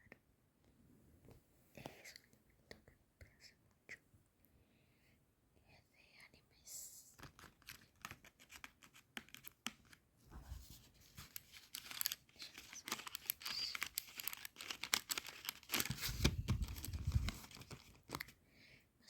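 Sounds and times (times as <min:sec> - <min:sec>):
crackling and tearing clicks: 0:11.2 - 0:18.3.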